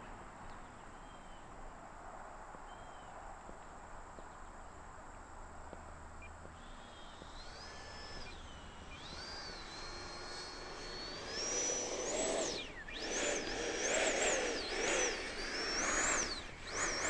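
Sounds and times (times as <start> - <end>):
electric ducted-fan whine: 0.0 - 17.0.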